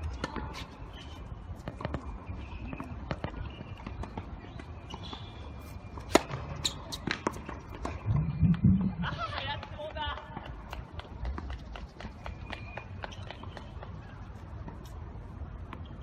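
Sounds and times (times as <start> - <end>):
tennis balls bouncing on court: 1.5 - 14.0
tennis balls struck by rackets: 5.9 - 8.0.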